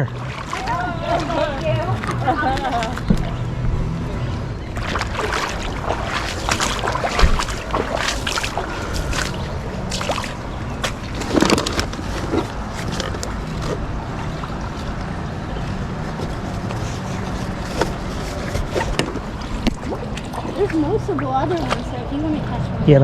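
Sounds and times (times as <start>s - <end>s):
water sloshing around a kayak: 0.0s - 22.6s
low rumble: 0.0s - 23.0s.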